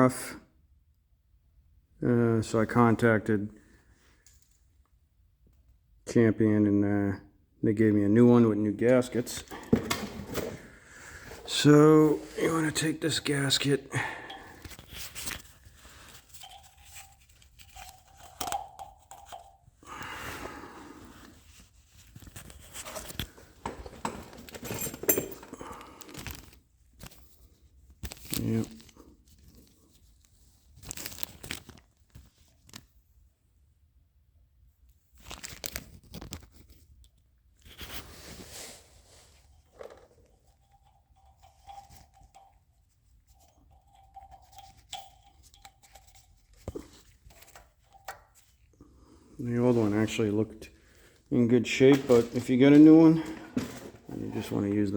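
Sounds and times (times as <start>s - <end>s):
packaging crinkling and tearing: 30.8s - 32.9s, 35.2s - 36.6s.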